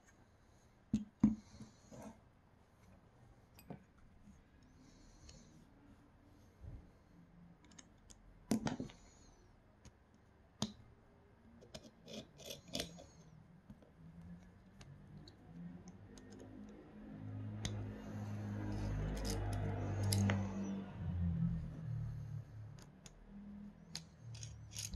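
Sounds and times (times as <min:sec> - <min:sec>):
small parts and tools clicking: 0:18.6 - 0:20.7, 0:22.8 - 0:24.9.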